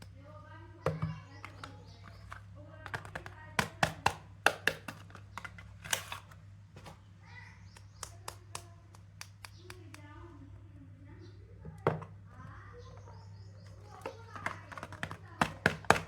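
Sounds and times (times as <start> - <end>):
sharp taps and clicks: 0.9 - 5.6, 7.7 - 10.1.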